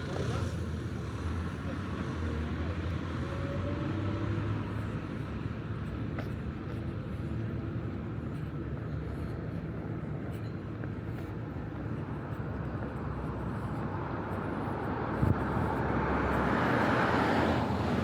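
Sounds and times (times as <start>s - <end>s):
cars passing: 12.0s - 18.0s.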